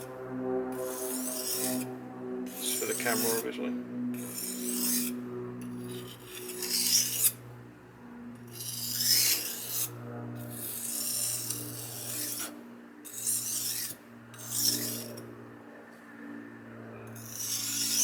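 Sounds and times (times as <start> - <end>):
steady low hum: 0.0 - 18.0
knife scraping on whetstone: 0.8 - 1.9, 2.5 - 3.5, 4.2 - 7.4, 8.4 - 15.3, 17.2 - 18.0.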